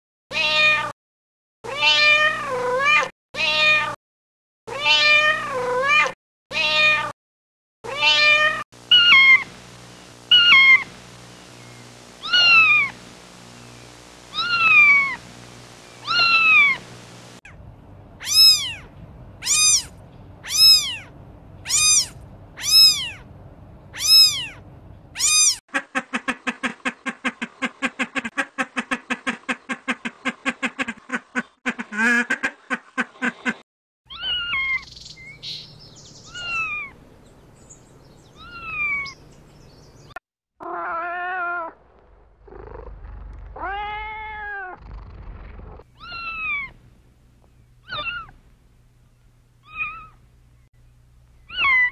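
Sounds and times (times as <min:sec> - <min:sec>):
cats meowing: 0:00.3 - 0:00.9, 0:01.7 - 0:04.0, 0:04.7 - 0:07.1, 0:07.9 - 0:09.5, 0:10.3 - 0:10.9, 0:12.2 - 0:12.9, 0:14.3 - 0:15.2, 0:16.0 - 0:16.8, 0:18.2 - 0:23.2, 0:24.0 - 0:24.6, 0:25.2 - 0:25.6, 0:34.1 - 0:35.0, 0:36.3 - 0:37.0, 0:38.4 - 0:39.2, 0:40.6 - 0:41.8, 0:43.5 - 0:44.8, 0:46.0 - 0:46.8, 0:47.8 - 0:48.4, 0:49.6 - 0:50.2, 0:51.5 - 0:51.9
fast pulsing call: 0:08.9 - 0:09.6, 0:10.3 - 0:11.0, 0:11.6 - 0:13.0, 0:14.3 - 0:15.3, 0:18.2 - 0:23.2, 0:23.9 - 0:24.6, 0:25.2 - 0:25.6.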